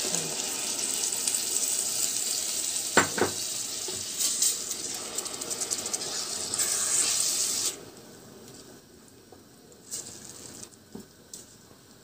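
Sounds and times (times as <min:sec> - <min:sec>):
food sizzling in a hot pot: 0:00.0 - 0:07.9.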